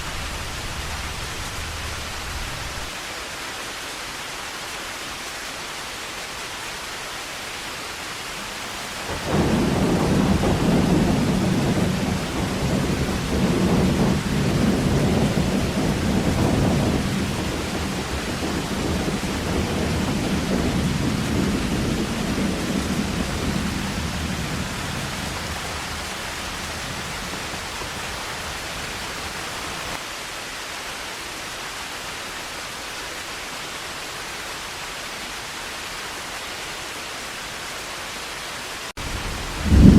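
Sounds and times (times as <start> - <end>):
heavy rain falling: 0.0 - 39.9
deep thunder rumble: 9.0 - 30.0, 39.0 - 39.9.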